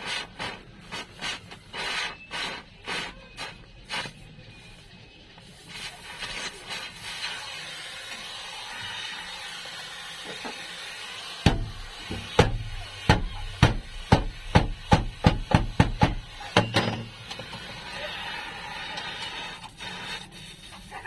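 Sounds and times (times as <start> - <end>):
hammer striking sheet steel: 11.4 - 17.7.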